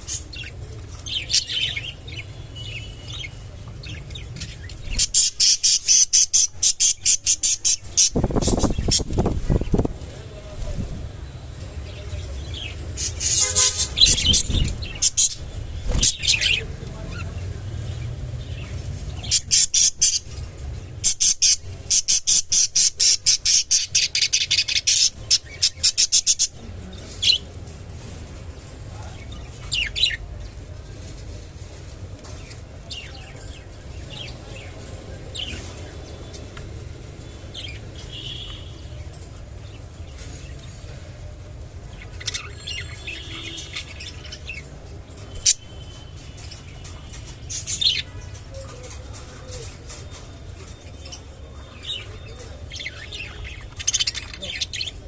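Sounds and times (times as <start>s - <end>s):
budgerigars chirping and squawking: 0.0s - 10.9s, 11.9s - 27.5s, 41.9s - 55.0s.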